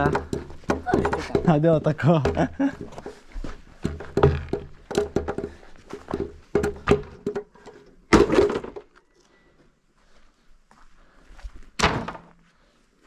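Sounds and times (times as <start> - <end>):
hard objects knocking and clattering: 0.0 - 9.0.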